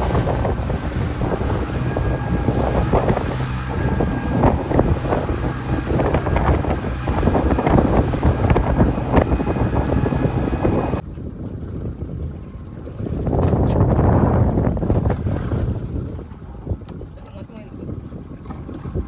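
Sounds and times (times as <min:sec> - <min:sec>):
boat engine running: 0:00.0 - 0:11.0
water splashes: 0:00.0 - 0:11.0
wind buffeting microphone: 0:00.0 - 0:19.0.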